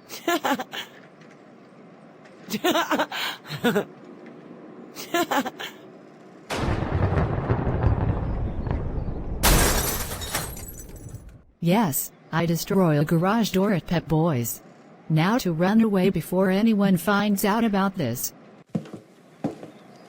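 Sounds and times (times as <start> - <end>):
loud rumbling crash: 6.5 - 11.4.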